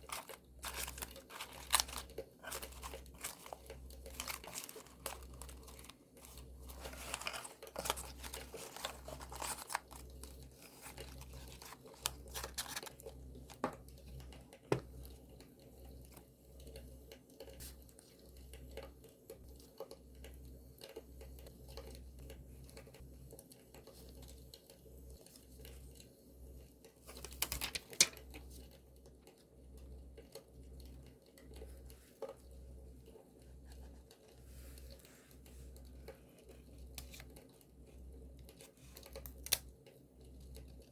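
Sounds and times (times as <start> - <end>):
paper crinkling and tearing: 0.0 - 13.7
paper rustling: 0.0 - 13.8, 27.1 - 28.2.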